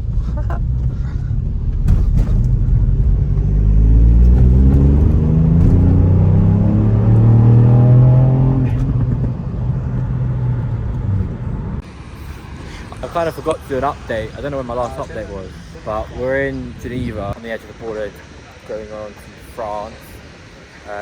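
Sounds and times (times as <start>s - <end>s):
car engine accelerating hard: 0.0s - 11.8s.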